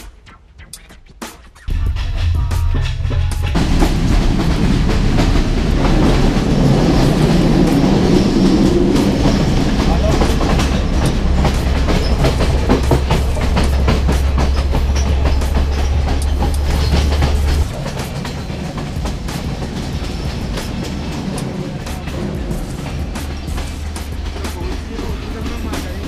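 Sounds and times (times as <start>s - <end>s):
train wheels clattering: 0.8s - 26.0s
heavy low rumble: 1.7s - 18.0s.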